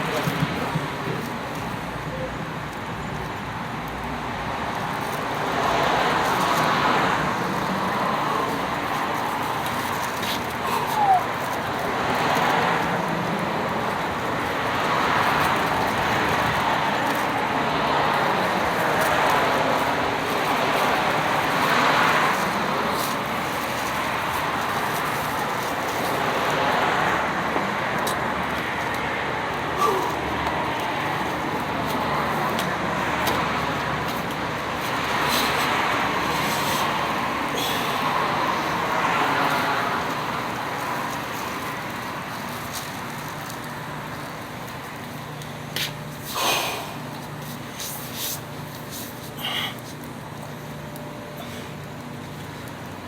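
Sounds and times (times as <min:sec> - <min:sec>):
road traffic noise: 0:00.0 - 0:53.0
vehicle passing: 0:04.8 - 0:44.3.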